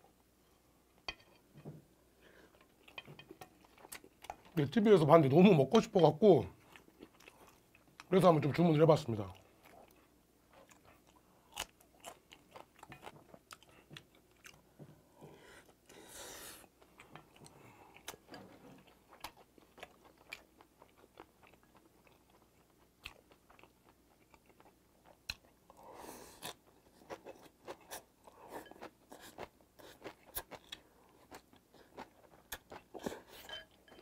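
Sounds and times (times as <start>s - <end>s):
mouth chewing food: 6.6s - 8.2s, 9.3s - 34.0s.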